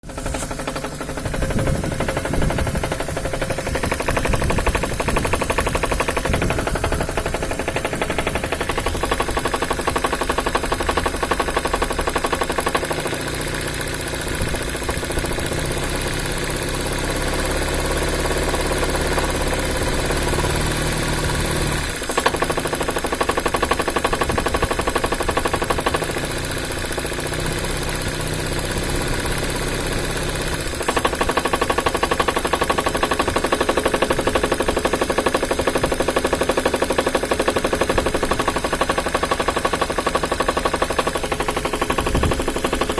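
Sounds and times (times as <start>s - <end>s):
engine running with rapid knocking: 0.0s - 42.9s.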